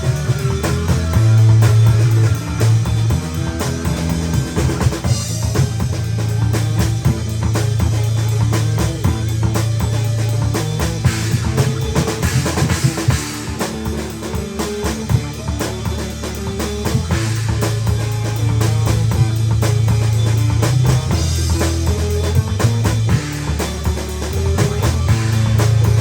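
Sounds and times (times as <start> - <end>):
bass line: 0.0 - 26.0
guitar: 0.0 - 26.0.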